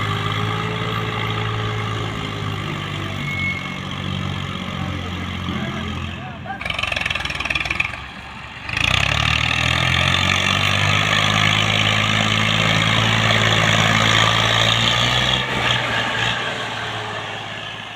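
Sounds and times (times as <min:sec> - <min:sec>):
tractor engine running: 0:03.8 - 0:17.9.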